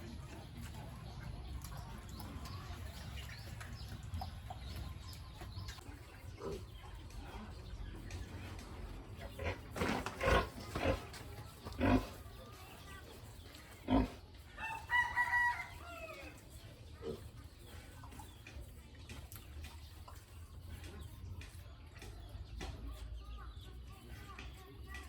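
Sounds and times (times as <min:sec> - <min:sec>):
farm animals calling: 0:00.0 - 0:19.0.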